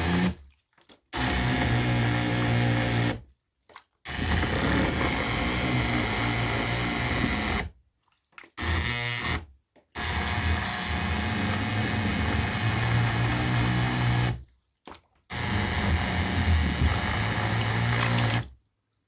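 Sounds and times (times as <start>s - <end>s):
immersion blender running: 0.0s - 0.4s, 1.2s - 3.2s, 4.1s - 7.7s, 8.6s - 9.4s, 10.0s - 14.4s, 15.3s - 18.5s.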